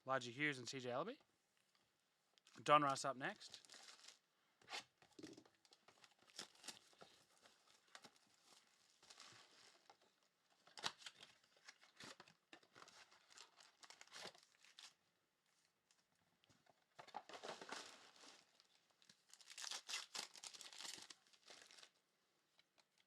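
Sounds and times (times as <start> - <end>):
foil wrappers crinkling and tearing: 3.4 - 4.2, 5.6 - 9.9, 10.6 - 15.0, 17.3 - 22.0.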